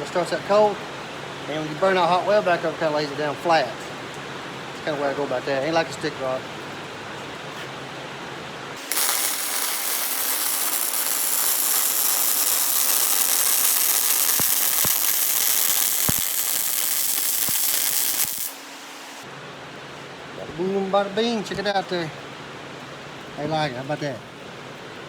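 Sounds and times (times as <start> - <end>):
welding arc crackling sizzle: 8.8 - 19.3.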